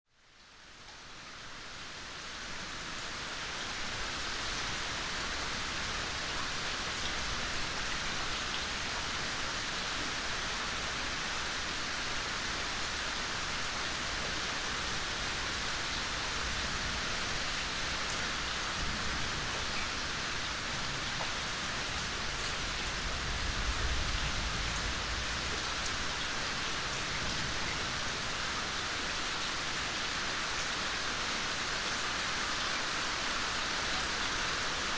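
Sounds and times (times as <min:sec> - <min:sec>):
steady rain: 0:00.1 - 0:34.9.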